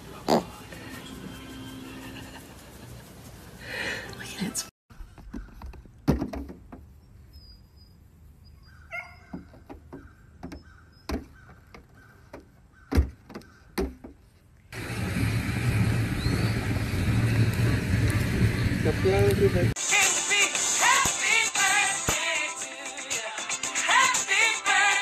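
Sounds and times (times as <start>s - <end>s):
outdoor rush of noise: 14.7s - 20.0s.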